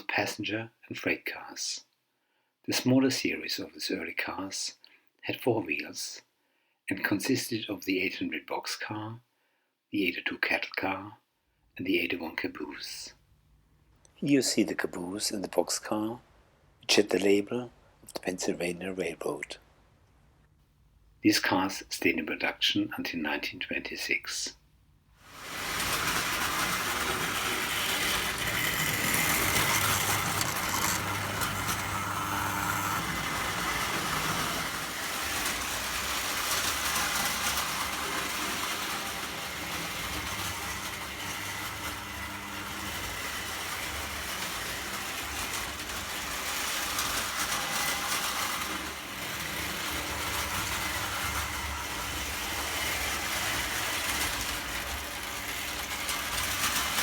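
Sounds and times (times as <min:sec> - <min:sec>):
metal wheels rolling on rail: 0:25.2 - 0:57.0
electric motor hum: 0:25.3 - 0:57.0.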